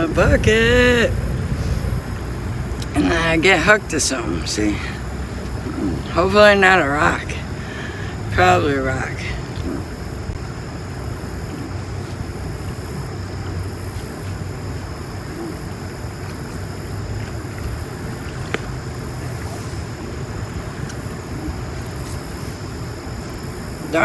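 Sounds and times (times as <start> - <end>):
wind on microphone: 0.0 - 8.5.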